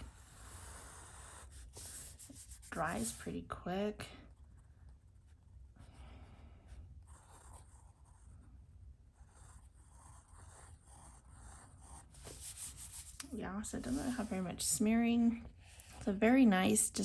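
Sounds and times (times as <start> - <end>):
pen nib scratching paper: 0.0 - 3.4, 7.0 - 8.5, 9.1 - 14.4.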